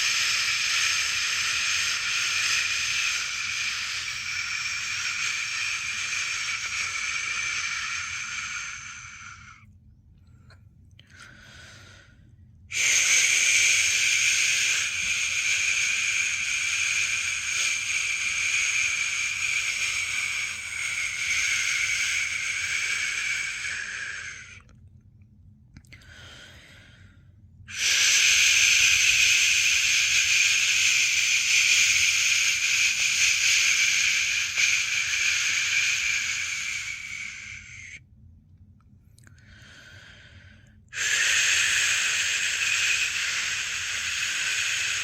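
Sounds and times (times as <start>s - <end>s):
person shushing: 0.0s - 9.6s, 12.7s - 24.6s, 27.7s - 38.0s, 41.0s - 45.0s.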